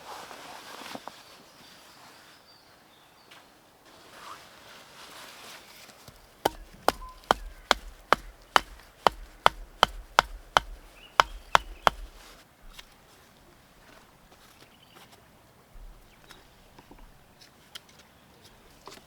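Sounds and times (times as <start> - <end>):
blade chopping into wood: 6.4 - 12.2.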